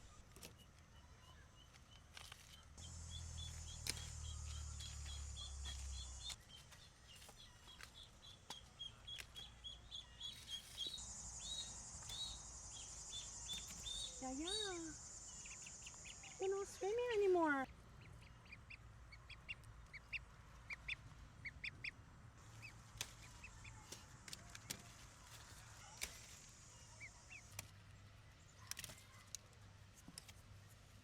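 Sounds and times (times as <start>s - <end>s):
small bird chirping: 0.1s - 27.7s
pulsing high insect buzz: 2.8s - 6.3s, 10.9s - 17.3s.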